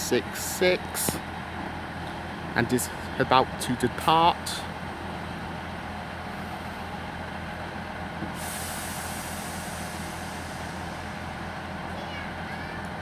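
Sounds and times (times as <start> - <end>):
diesel train engine idling: 0.0 - 13.0
air brakes hissing: 8.2 - 11.4.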